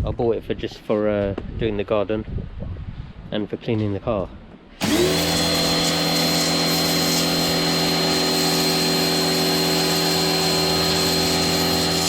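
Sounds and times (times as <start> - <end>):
high-pressure water jet hiss: 4.8 - 12.0
pressure washer motor hum: 4.8 - 12.0.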